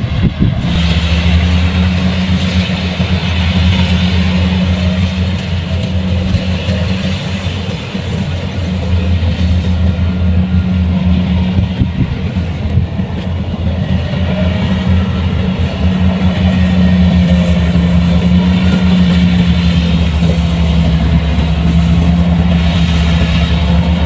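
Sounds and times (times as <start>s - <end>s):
diesel engine humming: 0.0s - 24.0s.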